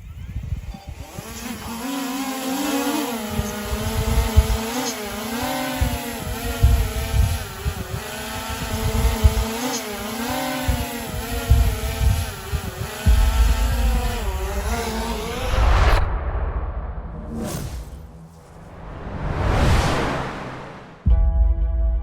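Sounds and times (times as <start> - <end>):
drone buzzing in flight: 0.0 - 21.1
wind thumps on microphone: 3.4 - 4.7, 5.8 - 9.6, 10.7 - 21.2
rush of noise: 13.1 - 21.1.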